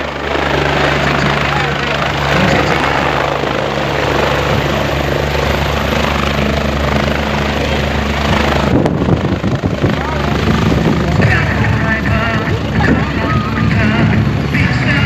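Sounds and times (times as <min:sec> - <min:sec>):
helicopter rotor and engine: 0:00.0 - 0:15.0.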